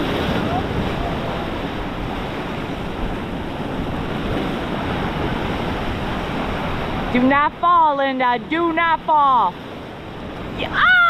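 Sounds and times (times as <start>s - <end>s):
wind on microphone: 0.0s - 7.6s
ocean surf washing: 0.0s - 11.0s.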